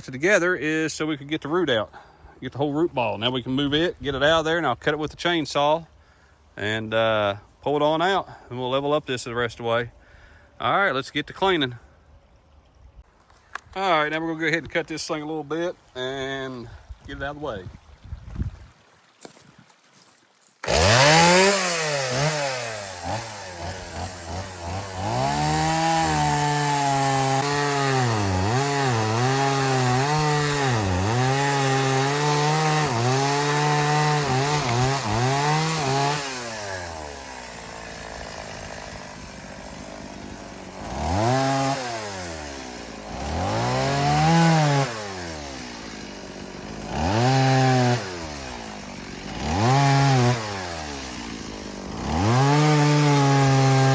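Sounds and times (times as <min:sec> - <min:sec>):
chainsaw cutting wood: 0:19.2 - 0:53.9.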